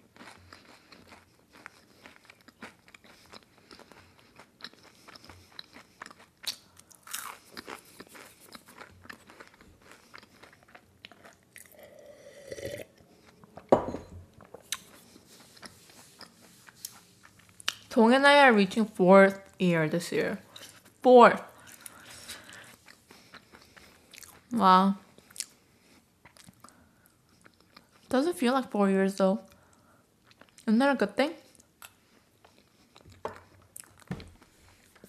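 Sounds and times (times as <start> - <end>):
crunchy chewing: 0.0 - 13.7, 14.4 - 17.9, 21.6 - 24.5.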